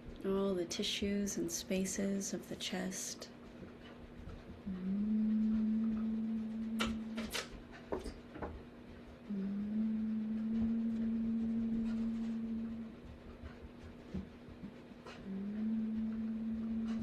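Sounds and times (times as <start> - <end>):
person humming low notes: 4.6 - 7.4, 9.2 - 13.1, 15.1 - 17.0.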